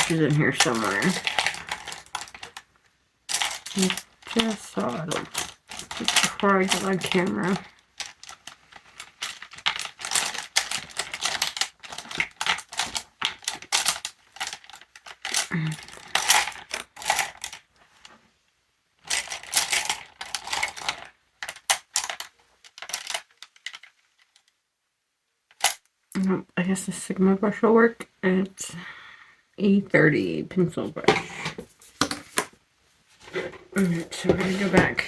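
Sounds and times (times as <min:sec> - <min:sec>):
cosmetics clicking and clattering: 0:00.0 - 0:17.8, 0:19.0 - 0:24.5, 0:25.5 - 0:25.9, 0:33.3 - 0:35.0.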